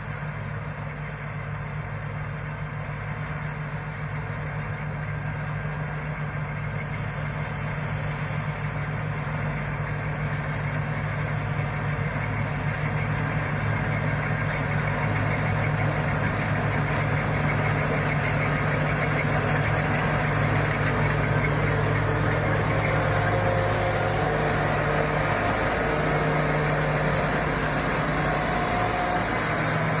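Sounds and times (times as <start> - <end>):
combine harvester engine running: 0.0 - 30.0.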